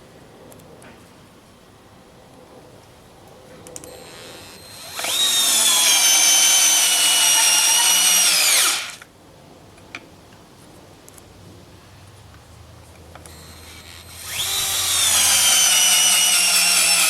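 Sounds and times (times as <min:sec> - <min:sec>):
cordless screwdriver motor whining: 0:03.8 - 0:09.0, 0:13.3 - 0:17.0.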